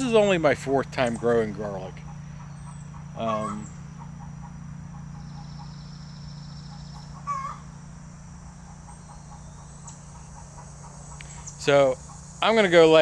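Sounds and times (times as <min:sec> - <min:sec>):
insects chirring: 0:00.0 - 0:13.0
low hum: 0:00.0 - 0:13.0
short animal call: 0:03.2 - 0:03.8.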